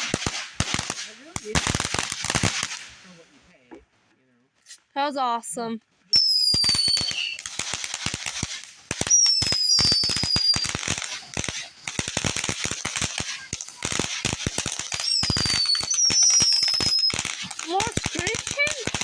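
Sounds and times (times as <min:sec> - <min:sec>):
fireworks crackling: 0:00.0 - 0:04.0, 0:04.6 - 0:19.0
high falling whistles: 0:06.2 - 0:07.4, 0:09.1 - 0:10.8, 0:15.0 - 0:17.2.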